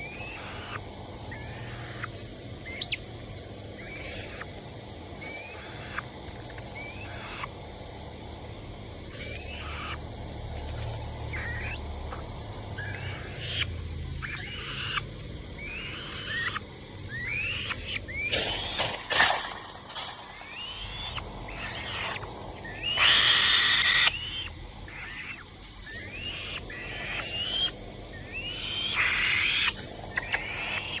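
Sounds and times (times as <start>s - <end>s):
falcon calling: 0.0s - 3.0s, 15.6s - 31.0s.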